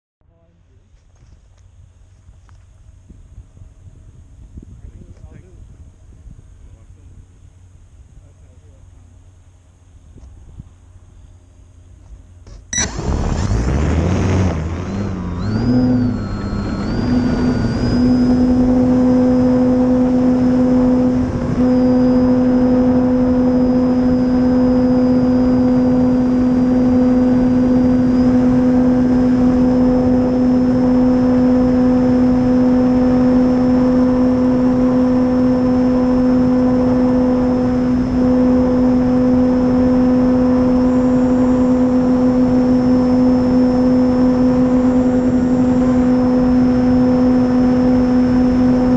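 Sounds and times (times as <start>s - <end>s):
electric motor whine: 11.0s - 48.9s.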